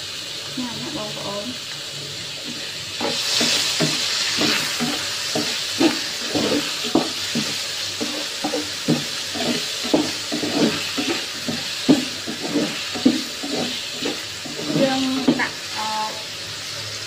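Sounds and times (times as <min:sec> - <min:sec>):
snails sizzling in hot oil: 0:00.0 - 0:17.0
spatula and shells knocking pan: 0:03.0 - 0:15.6.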